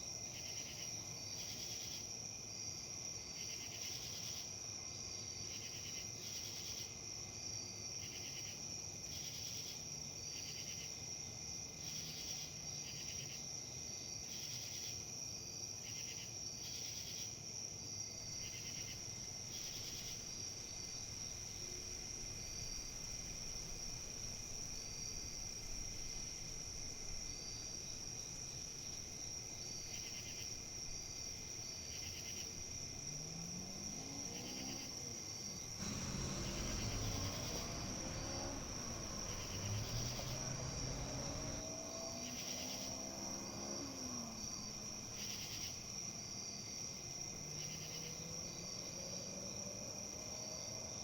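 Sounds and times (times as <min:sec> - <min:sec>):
soft pulsing insect call: 0:00.0 - 0:51.0
insects trilling: 0:17.9 - 0:50.8
faint low rising tones: 0:35.8 - 0:41.6.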